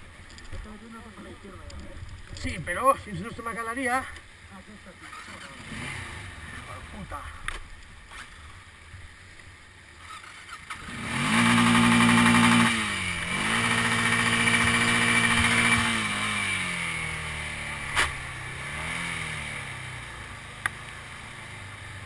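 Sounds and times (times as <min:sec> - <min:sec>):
quad bike engine revving: 0:05.0 - 0:07.3, 0:10.0 - 0:22.0.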